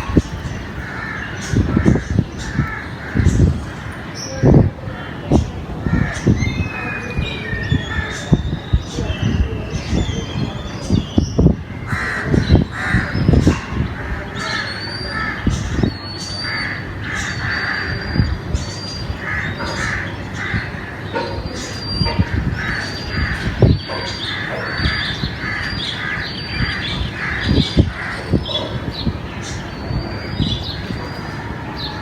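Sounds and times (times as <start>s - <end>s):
small birds chirping: 0.0s - 32.0s
crows cawing: 0.1s - 4.3s, 5.8s - 6.4s, 11.8s - 18.2s, 19.2s - 28.9s.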